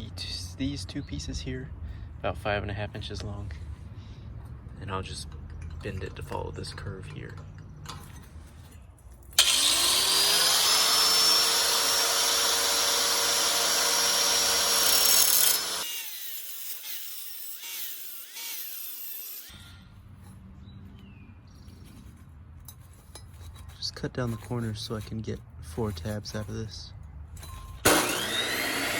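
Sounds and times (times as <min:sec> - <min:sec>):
power tool cutting steel: 0:09.4 - 0:19.8, 0:27.8 - 0:28.9
faint light handling sounds: 0:20.9 - 0:27.8.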